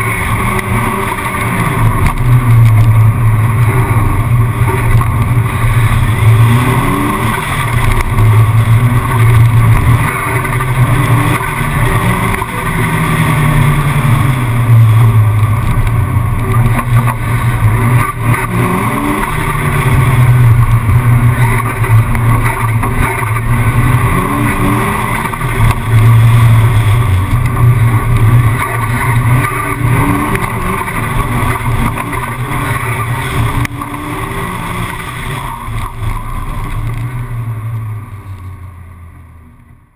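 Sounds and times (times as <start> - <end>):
car engine revving hard: 0.0 - 38.7.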